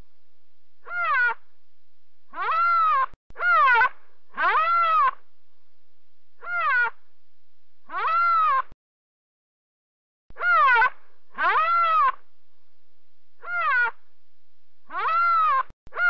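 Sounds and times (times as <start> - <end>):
animal high calls: 0.8 - 1.4, 2.3 - 5.2, 6.4 - 7.0, 7.9 - 8.7, 10.4 - 12.2, 13.4 - 14.0, 14.9 - 16.0.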